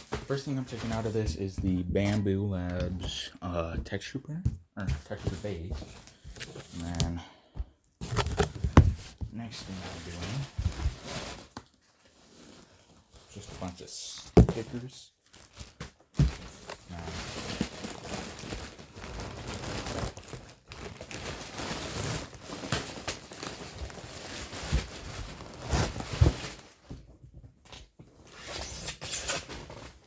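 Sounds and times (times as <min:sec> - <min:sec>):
packaging crinkling and tearing: 0:08.0 - 0:08.9, 0:14.6 - 0:26.7.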